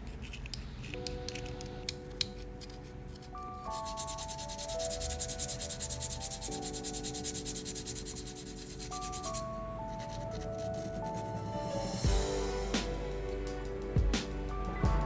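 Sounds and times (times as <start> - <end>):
background music with held notes: 0.9 - 15.0
sanding strokes: 2.6 - 9.4.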